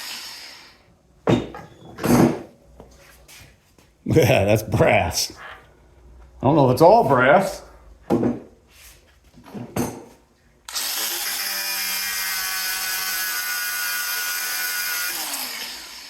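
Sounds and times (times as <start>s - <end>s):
power tool motor running: 0.0s - 0.8s, 10.7s - 16.0s.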